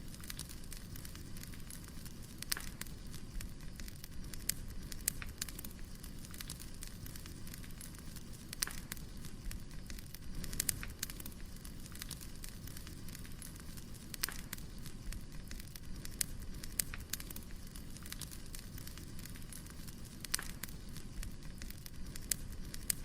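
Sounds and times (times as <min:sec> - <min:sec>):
fire crackling and popping: 0:00.0 - 0:23.0
wood fire rumble: 0:00.0 - 0:23.0.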